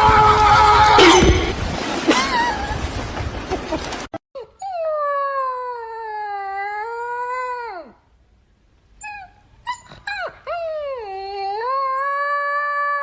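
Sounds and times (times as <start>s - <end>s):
dog howling: 9.1s - 13.0s.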